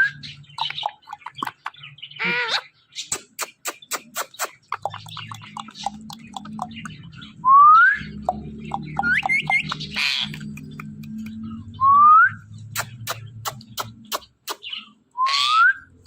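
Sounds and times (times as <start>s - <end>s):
parrot chirping: 0.0s - 11.7s, 12.4s - 16.0s
parrot squawking: 0.1s - 7.3s, 8.4s - 10.7s, 12.7s - 15.9s
parrot clicking: 0.6s - 1.8s, 3.1s - 7.1s, 8.2s - 11.4s, 12.7s - 14.7s.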